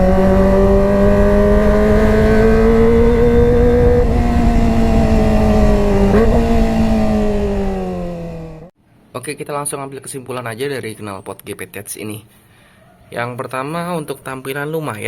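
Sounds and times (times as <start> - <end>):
motorcycle engine revving high: 0.0 - 8.7.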